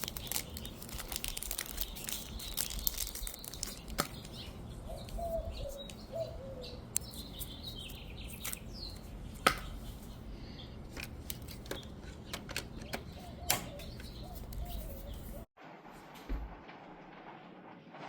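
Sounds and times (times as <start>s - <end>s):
packaging rustling: 0.0s - 4.6s.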